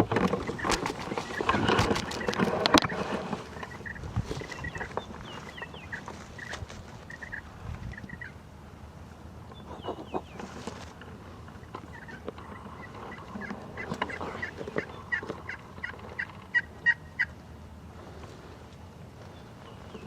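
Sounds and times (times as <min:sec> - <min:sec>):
turkey yelping: 0:00.4 - 0:08.4, 0:11.5 - 0:17.4.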